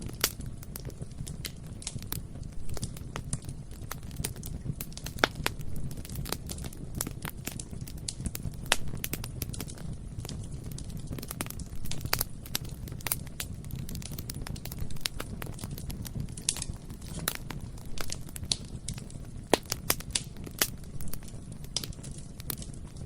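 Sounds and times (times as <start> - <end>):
bonfire crackling: 0.0 - 23.0.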